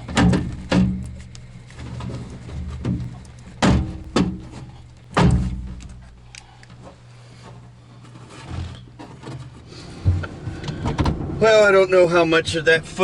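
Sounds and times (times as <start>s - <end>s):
sharp thunks and knocks: 0.0s - 1.2s, 2.6s - 6.0s, 10.0s - 11.4s
steady low hum: 0.0s - 13.0s.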